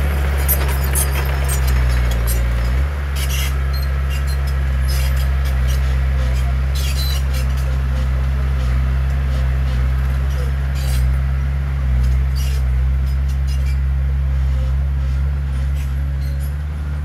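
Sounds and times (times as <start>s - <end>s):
heavy diesel engine droning: 0.0s - 17.0s
metal clanks and rattles: 0.1s - 3.4s.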